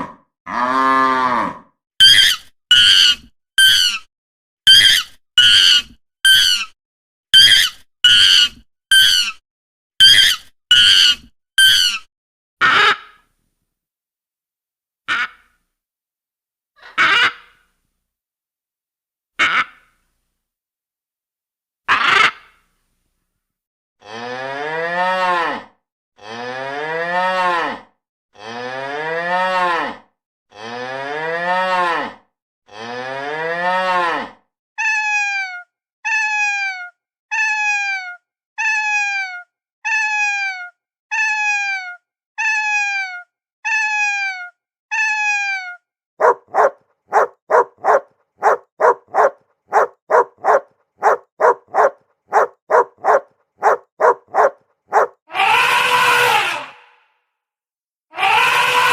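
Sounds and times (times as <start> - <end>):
cow mooing: 0.5 - 1.6, 46.2 - 55.1
dog barking: 46.2 - 55.2.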